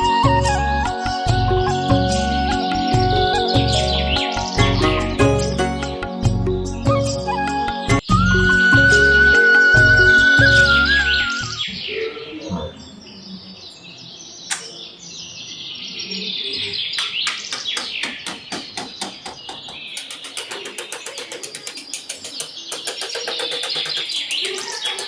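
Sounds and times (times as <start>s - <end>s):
birds chirping: 10.8s - 25.0s.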